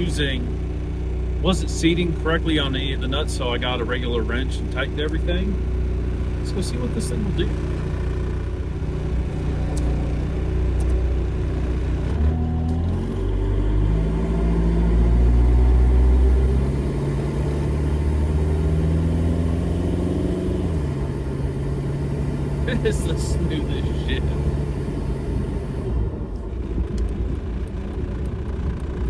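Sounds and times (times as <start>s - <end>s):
diesel engine accelerating: 0.0s - 29.0s.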